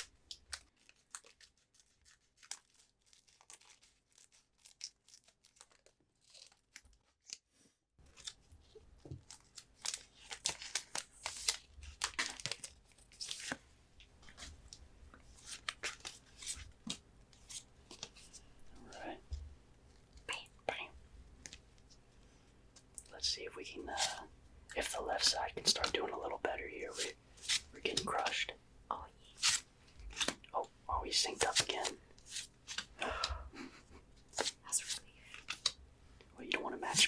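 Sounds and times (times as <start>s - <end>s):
foil wrappers tearing and crinkling: 0.3s - 7.4s, 9.3s - 13.5s.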